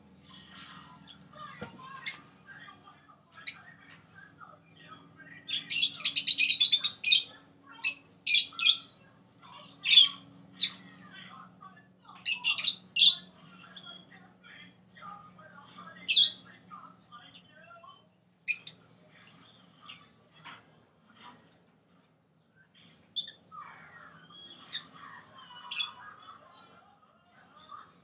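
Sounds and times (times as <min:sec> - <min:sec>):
parrots squawking and chirping: 0:00.3 - 0:02.6, 0:05.4 - 0:09.0, 0:09.7 - 0:11.0, 0:12.2 - 0:14.0, 0:16.0 - 0:16.4, 0:18.5 - 0:18.8, 0:23.2 - 0:26.6.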